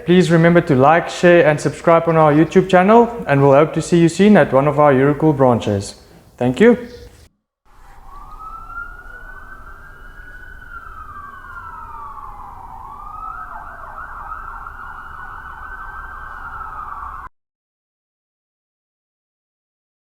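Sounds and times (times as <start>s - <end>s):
emergency vehicle siren wailing: 0.0s - 5.1s, 7.7s - 17.3s.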